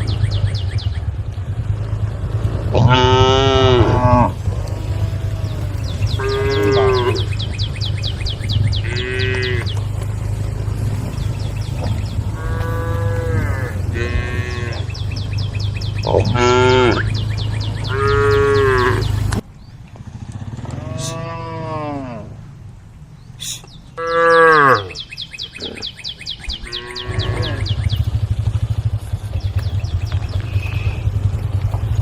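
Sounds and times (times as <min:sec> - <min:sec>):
cows mooing: 0:02.5 - 0:19.4, 0:20.6 - 0:22.5, 0:24.0 - 0:25.9, 0:26.6 - 0:28.1, 0:30.4 - 0:31.8.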